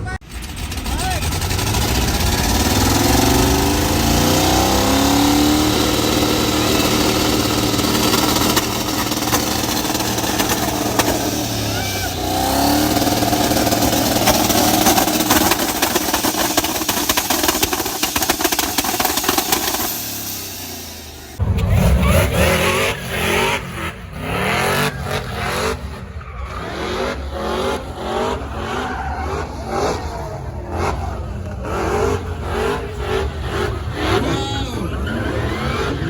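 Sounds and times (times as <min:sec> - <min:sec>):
car engines revving: 0:00.0 - 0:36.0
engine launch limiter pops: 0:00.3 - 0:25.6.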